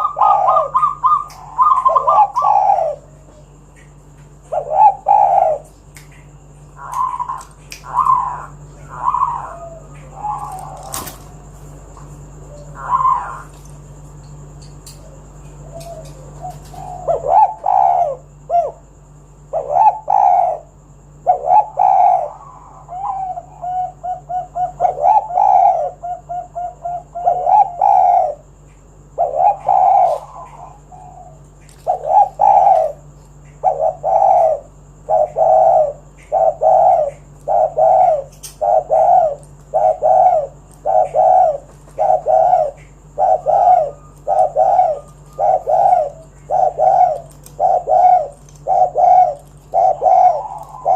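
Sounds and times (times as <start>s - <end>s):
dove cooing: 0.0s - 50.9s
faint steady hum: 0.0s - 50.9s.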